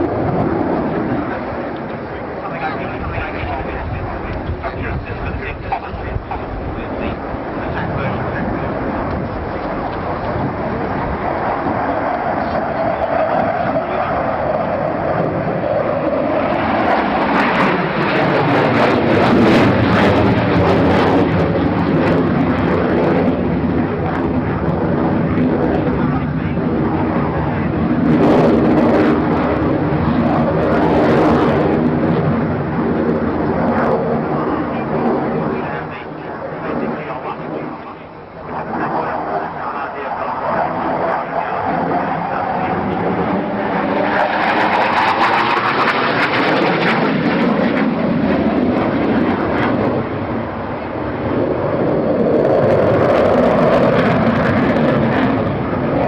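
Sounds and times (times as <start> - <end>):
aircraft engine roar: 0.0 - 56.0.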